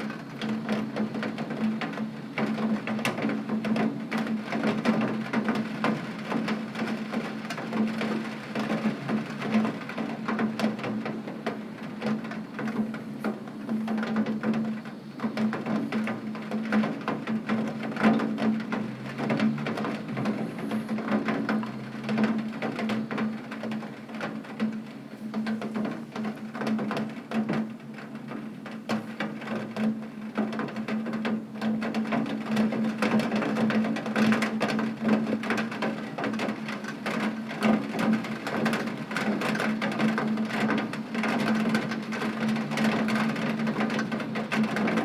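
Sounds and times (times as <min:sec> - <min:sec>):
rain on window glass: 0:00.0 - 0:45.0.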